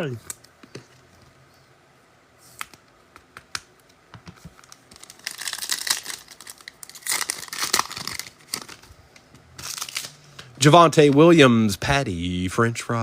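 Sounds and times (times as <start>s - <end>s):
foil wrapper tearing and crinkling: 4.6s - 8.9s, 9.6s - 10.2s.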